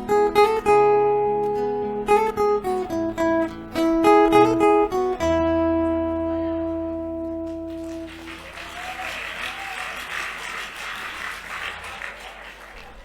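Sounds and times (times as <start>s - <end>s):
acoustic guitar band chord: 0.0s - 8.5s
audience applause: 7.4s - 13.0s.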